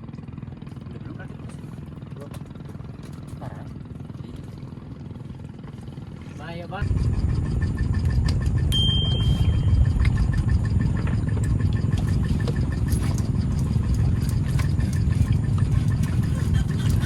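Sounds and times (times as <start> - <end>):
boat engine running: 0.0 - 17.0
faint regular ticking: 9.6 - 16.2.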